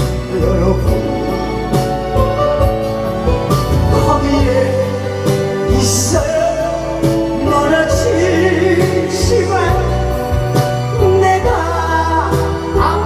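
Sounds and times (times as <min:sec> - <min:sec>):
backing track with bass and drums: 0:03.3 - 0:06.0.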